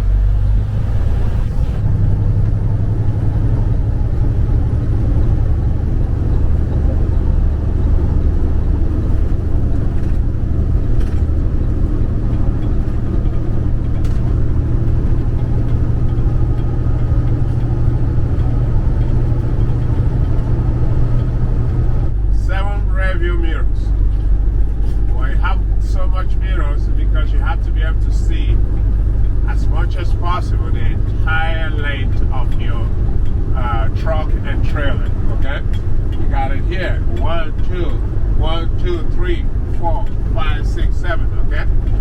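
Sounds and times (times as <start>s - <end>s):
diesel truck engine running: 0.0s - 42.0s.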